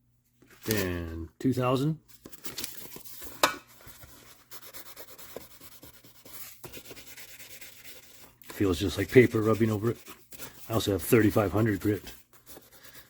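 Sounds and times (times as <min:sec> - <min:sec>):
sandpaper rubbing on metal: 0:04.4 - 0:13.0.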